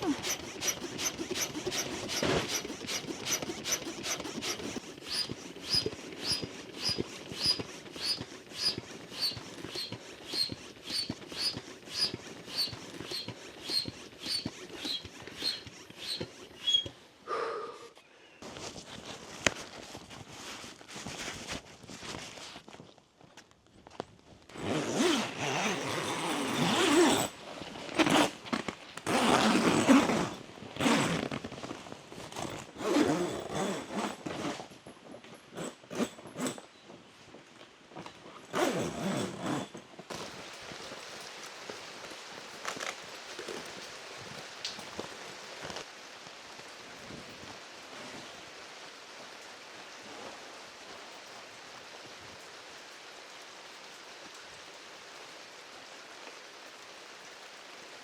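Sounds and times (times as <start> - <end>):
loud rustling and scraping: 0.0 - 17.0, 18.4 - 22.8, 24.5 - 37.0, 38.0 - 45.9
rain hissing: 0.0 - 17.7, 40.1 - 58.0.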